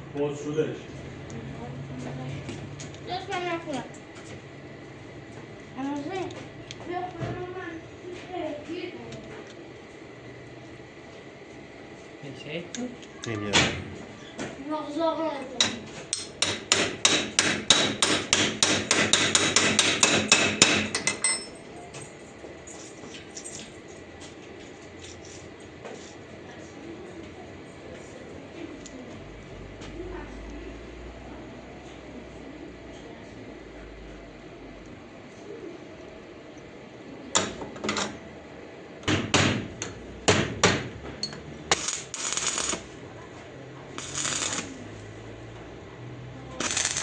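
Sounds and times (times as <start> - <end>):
hammer beating metal: 15.6 - 21.4
sharp knocks and clanks: 15.6 - 21.5, 39.0 - 41.5.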